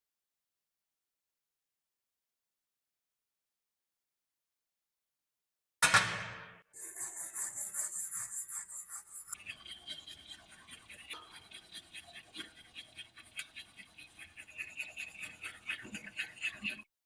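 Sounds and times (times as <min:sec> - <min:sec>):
hand tool scraping rusty metal: 0:06.8 - 0:16.8.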